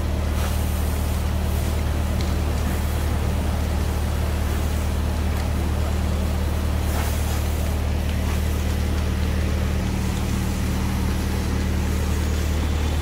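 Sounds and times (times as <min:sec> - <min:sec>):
fire engine running: 0:00.0 - 0:13.0.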